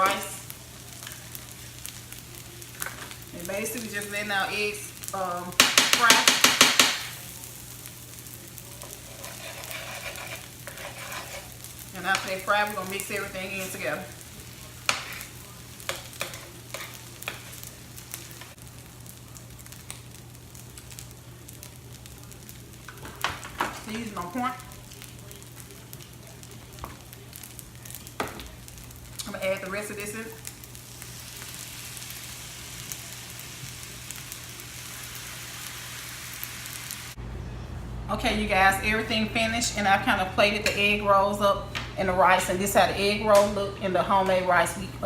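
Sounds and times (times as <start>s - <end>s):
eggs sizzling on a griddle: 0.0s - 37.2s
utensil scraping on a griddle: 8.7s - 17.7s.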